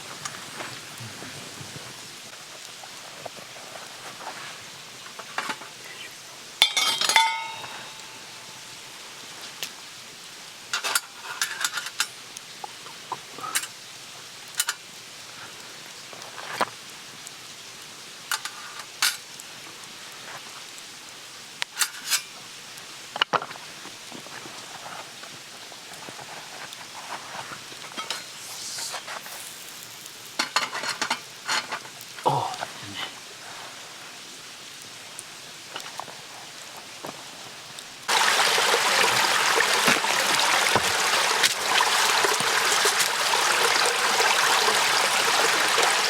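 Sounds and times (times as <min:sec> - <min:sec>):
steady low hiss: 0:00.0 - 0:46.0
ringing metal clank: 0:06.6 - 0:08.4
metal utensils clinking on cookware: 0:06.6 - 0:08.6, 0:10.7 - 0:12.2, 0:14.6 - 0:14.8, 0:18.3 - 0:19.2, 0:21.8 - 0:22.3, 0:28.0 - 0:31.9.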